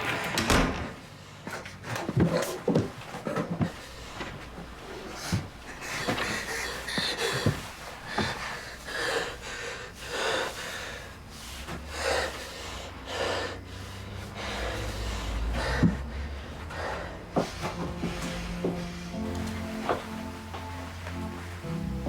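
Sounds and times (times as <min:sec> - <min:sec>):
person breathing hard: 0:03.6 - 0:22.0
low drone: 0:14.2 - 0:22.0.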